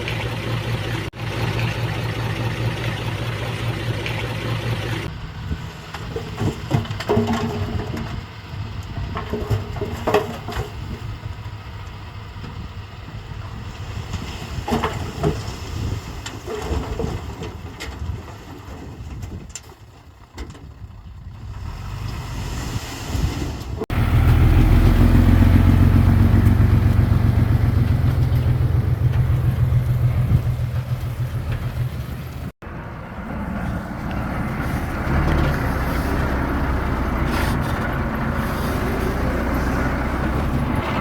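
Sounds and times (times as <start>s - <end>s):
diesel machinery engines running: 0.0s - 14.1s, 23.9s - 41.0s.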